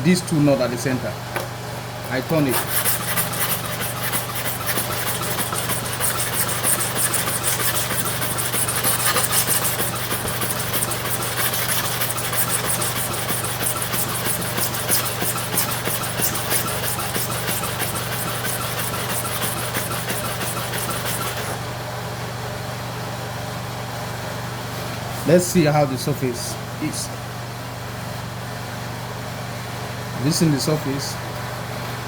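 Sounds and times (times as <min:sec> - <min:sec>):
blade scraping on sharpening stone: 0:02.5 - 0:21.6.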